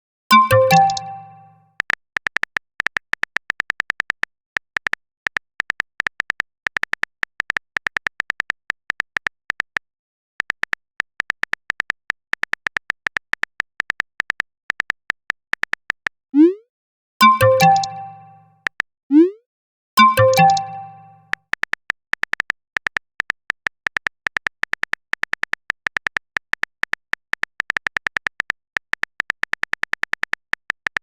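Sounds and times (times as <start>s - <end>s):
phone keyboard tapping clicks: 0.3s - 9.8s, 17.3s - 18.8s, 20.0s - 31.0s
rising message-sent bloop: 16.4s - 16.6s, 17.2s - 18.4s, 20.0s - 21.2s.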